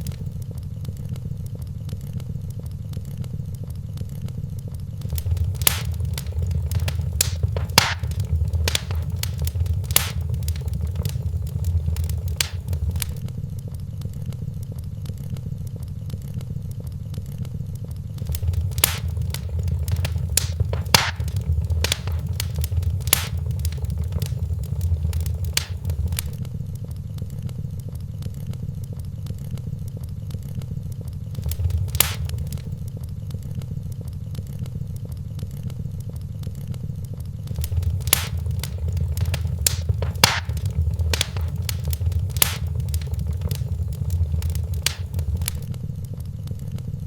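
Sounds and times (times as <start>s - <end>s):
sharp pops from fire: 0.0s - 0.4s, 5.0s - 13.2s, 18.2s - 26.4s, 31.4s - 32.9s, 37.5s - 45.7s
wood fire crackling: 0.0s - 2.6s, 5.0s - 13.4s, 18.2s - 26.5s, 31.3s - 33.0s, 37.5s - 45.7s
low rumble: 5.0s - 13.2s, 18.2s - 26.4s, 31.4s - 32.8s, 37.5s - 45.7s.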